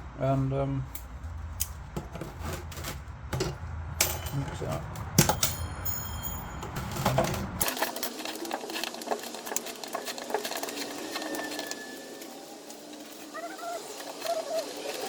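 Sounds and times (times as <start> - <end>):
stirrer scraping a pot: 6.8 - 15.0.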